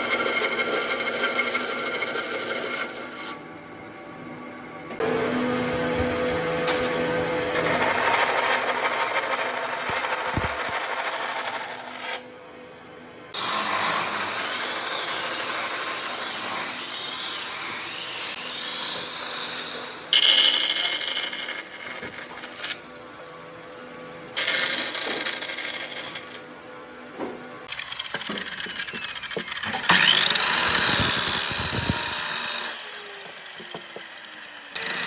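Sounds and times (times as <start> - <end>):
tool rubbing on wood: 8.1 - 11.2, 27.2 - 32.2.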